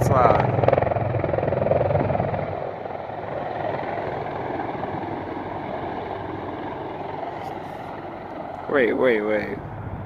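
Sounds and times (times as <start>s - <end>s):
helicopter rotors and engines: 0.0s - 10.0s
wind on microphone: 0.0s - 10.0s.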